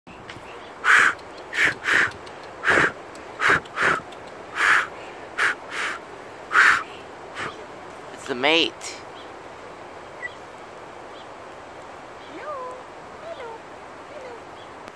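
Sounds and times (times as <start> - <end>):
bird harsh rasping calls: 0.7 - 7.7.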